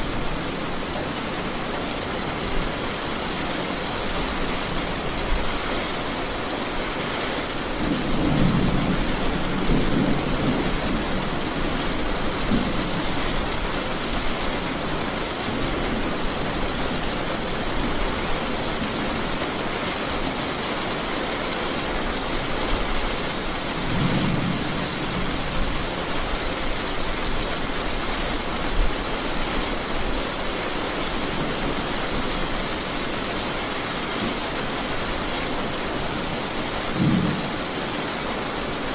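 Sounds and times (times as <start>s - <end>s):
heavy rain falling: 0.0s - 38.9s
low thunder rumble: 36.8s - 37.8s.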